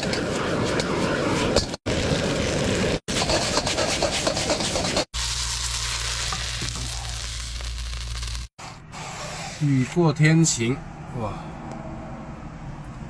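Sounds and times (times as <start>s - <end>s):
spatula scraping a wok: 3.1s - 5.6s
food sizzling in a wok: 3.2s - 8.5s.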